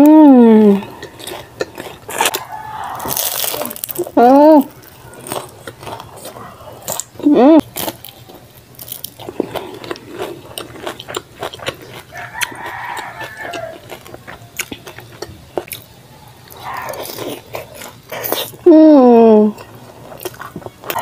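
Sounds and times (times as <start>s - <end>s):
wet chewing and lip smacks: 9.0s - 18.6s.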